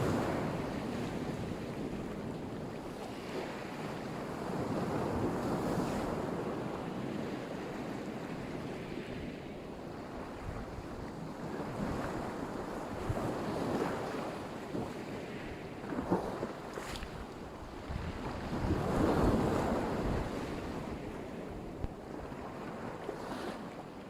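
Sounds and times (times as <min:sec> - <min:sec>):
wind buffeting microphone: 0:00.0 - 0:23.8
waves washing onto shore: 0:00.0 - 0:24.0.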